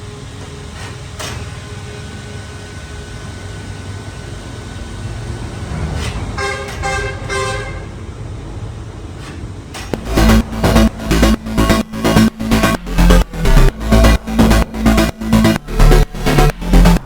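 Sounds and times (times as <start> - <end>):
horn tooting: 6.4 - 8.0
engine or traffic rumble: 9.9 - 17.0.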